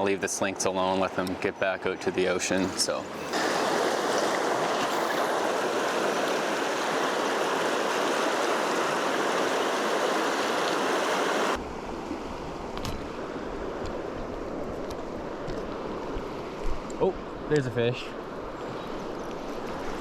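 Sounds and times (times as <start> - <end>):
river rushing over rocks: 3.3 - 11.6.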